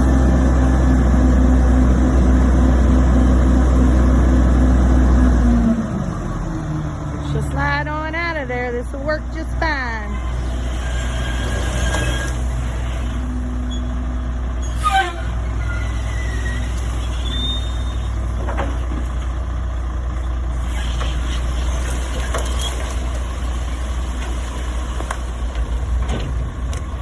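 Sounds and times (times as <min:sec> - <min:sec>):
diesel truck engine running: 0:00.0 - 0:27.0
squeaks and knocks from truck bed: 0:10.2 - 0:13.0, 0:14.6 - 0:19.1, 0:20.6 - 0:23.2
loud hiss with falling squeal: 0:10.7 - 0:13.1, 0:14.6 - 0:18.1.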